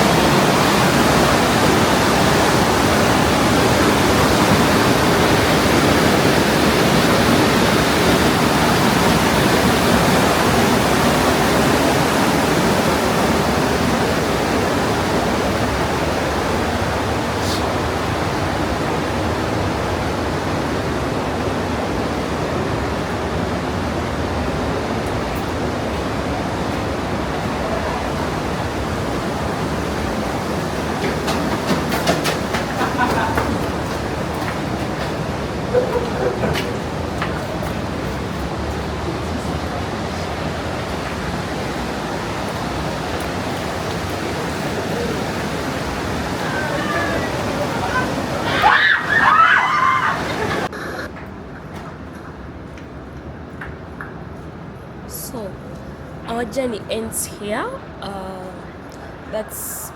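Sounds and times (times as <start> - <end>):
mountain stream rushing: 0.0 - 56.8.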